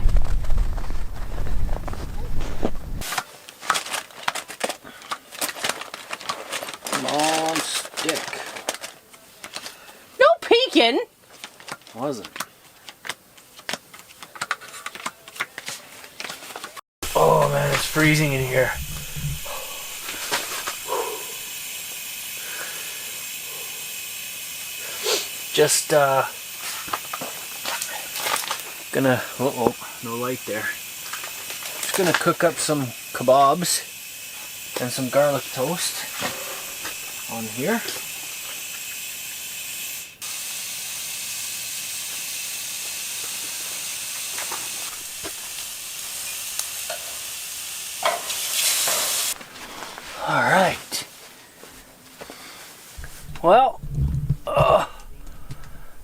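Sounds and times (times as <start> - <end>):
gas hissing from burner: 0.0 - 3.3, 17.0 - 56.0
food sizzling: 17.0 - 51.3.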